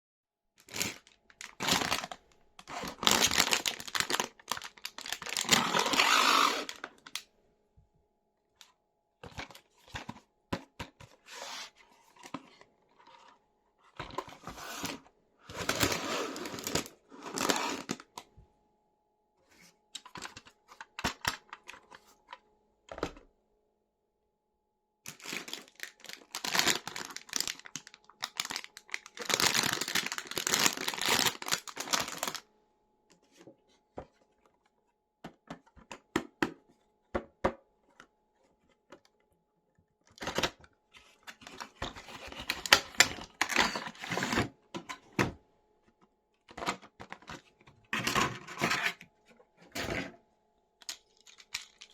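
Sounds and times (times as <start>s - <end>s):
packaging tearing and crinkling: 0.6s - 7.2s, 14.6s - 18.2s, 25.1s - 32.4s, 50.8s - 51.9s.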